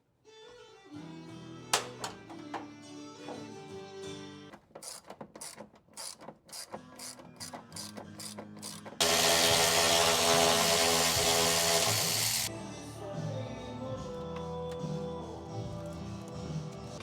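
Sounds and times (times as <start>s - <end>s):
socket ratchet clicking: 4.8s - 9.8s.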